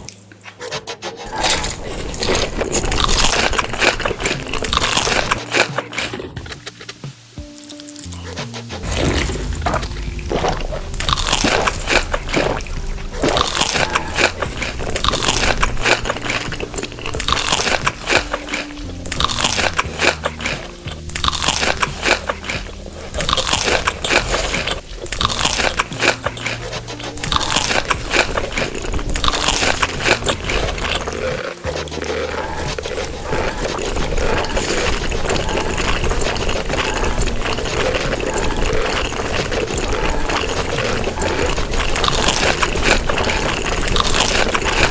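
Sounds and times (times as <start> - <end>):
crunchy food being chewed: 0.0 - 44.9
soft background music: 0.0 - 44.9.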